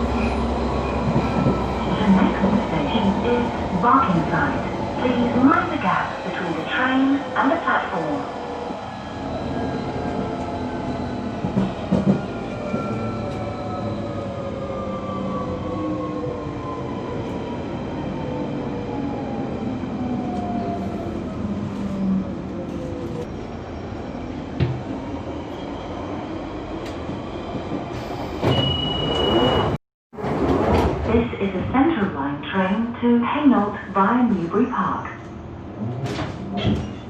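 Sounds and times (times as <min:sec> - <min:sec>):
train running noise: 0:09.4 - 0:13.5.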